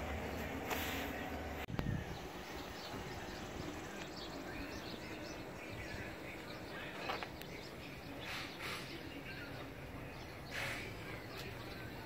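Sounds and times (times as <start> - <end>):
birds chirping: 0.0 - 12.0
outdoor background noise: 0.0 - 12.0.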